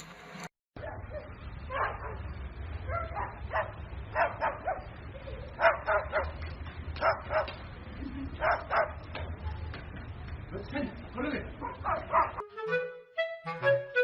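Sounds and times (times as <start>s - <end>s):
steady low hum: 0.1s - 12.4s
dog yipping and barking: 0.8s - 2.3s, 2.9s - 6.4s, 7.0s - 7.6s, 8.4s - 9.7s, 11.6s - 12.4s.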